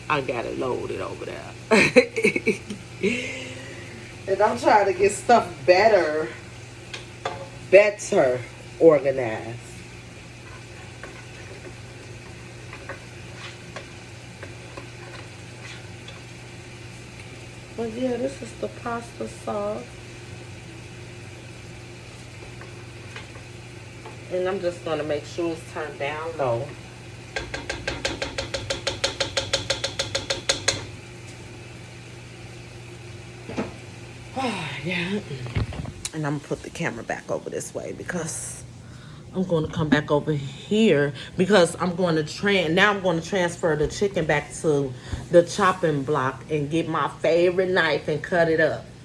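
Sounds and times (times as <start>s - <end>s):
low steady hum: 0.0s - 49.0s
food sizzling in a pan: 0.3s - 35.2s
spoon knocking against pot: 27.3s - 31.0s.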